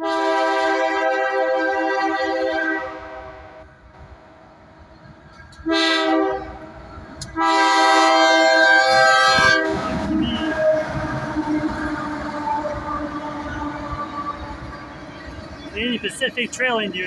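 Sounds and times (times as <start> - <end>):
locomotive air horn: 0.0 - 3.7, 5.6 - 14.8
train passing rumble: 0.0 - 17.0.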